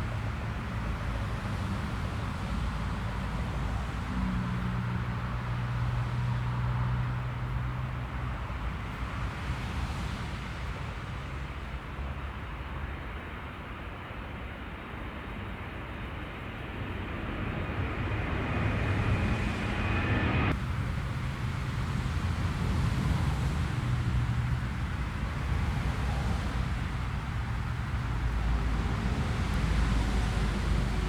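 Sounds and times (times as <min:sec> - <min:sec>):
jet engine whine: 0:12.8 - 0:31.0
jet engine rumble: 0:13.6 - 0:31.0.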